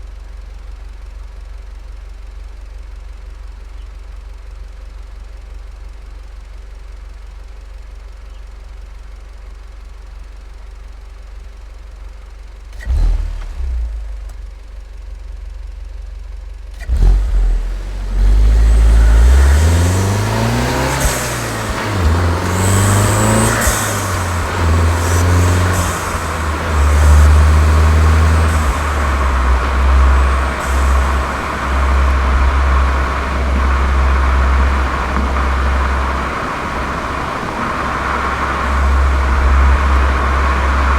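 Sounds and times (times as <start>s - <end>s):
car engine idling: 0.0s - 40.9s
car accelerating through gears: 16.8s - 40.9s.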